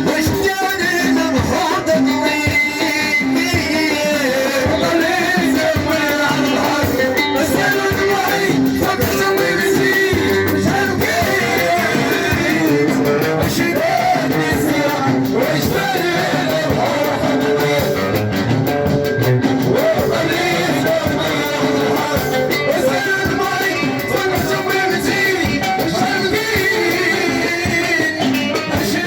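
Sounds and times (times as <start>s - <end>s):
percussion strikes: 0.0s - 29.0s
person singing with instruments: 0.0s - 29.0s.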